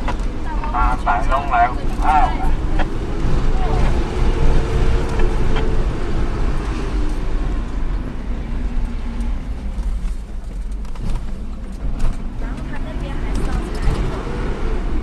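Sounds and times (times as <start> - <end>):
road noise: 0.0 - 15.0
vehicle engine rumbling: 0.0 - 15.0.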